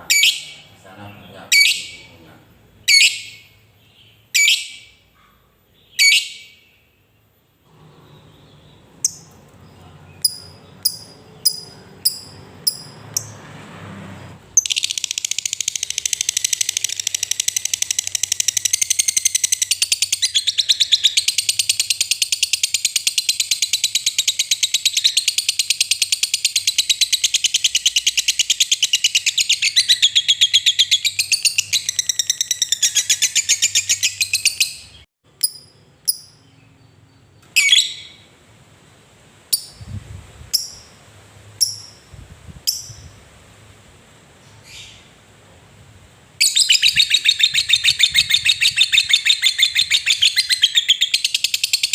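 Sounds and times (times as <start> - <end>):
lovebird chattering trill: 0.0 - 0.7, 1.5 - 2.1, 2.8 - 5.0, 5.9 - 6.6, 10.2 - 13.3, 14.6 - 36.5, 40.5 - 41.0, 41.6 - 42.1, 46.4 - 51.9
lovebird chirping: 0.0 - 13.4, 14.5 - 38.3, 39.5 - 39.9, 40.5 - 41.0, 41.6 - 43.3, 44.4 - 45.2, 46.4 - 51.9.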